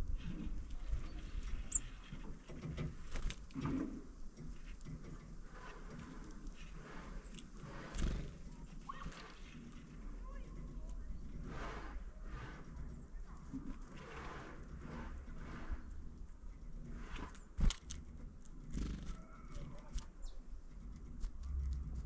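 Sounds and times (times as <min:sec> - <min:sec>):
bird chirp: 0:00.8 - 0:02.7, 0:14.6 - 0:21.2.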